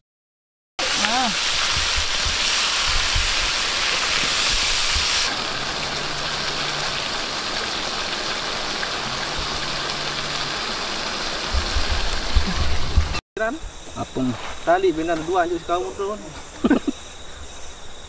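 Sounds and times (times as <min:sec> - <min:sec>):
food sizzling and bubbling in a wok: 0:00.8 - 0:14.0
low thumps: 0:11.5 - 0:13.8.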